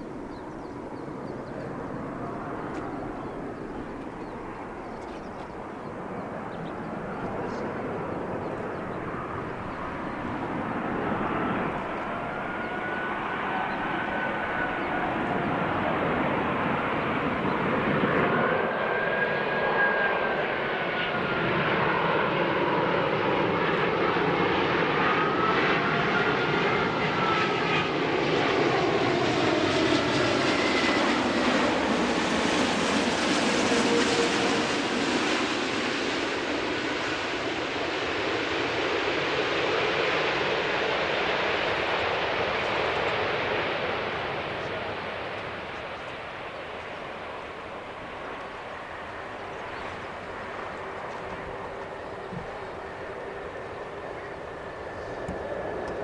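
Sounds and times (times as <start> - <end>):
jet airliner roaring overhead: 0.0 - 56.0
whining jet engine tones: 0.0 - 56.0.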